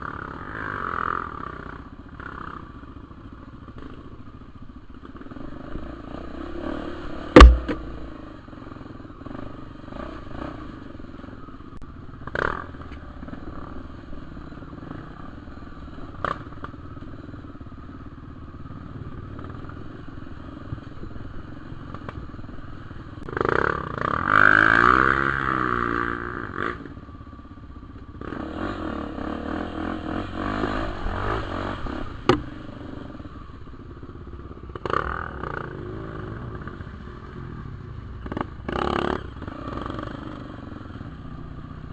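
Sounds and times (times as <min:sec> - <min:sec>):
motorcycle engine running: 0:00.0 - 0:41.9
sharp knocks and clatters: 0:07.4 - 0:08.2.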